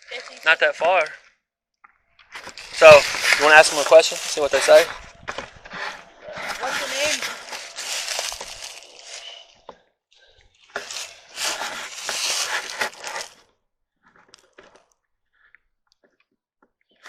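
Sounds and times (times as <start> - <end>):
rustling crunching noise: 2.2 - 9.6, 10.6 - 13.4.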